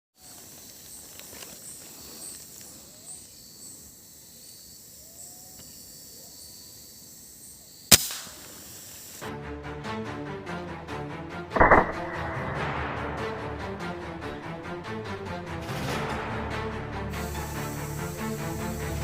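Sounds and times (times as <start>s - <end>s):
insects chirping: 0.2s - 9.2s, 17.2s - 19.0s
air rifle shot: 7.9s - 8.4s, 11.6s - 14.3s.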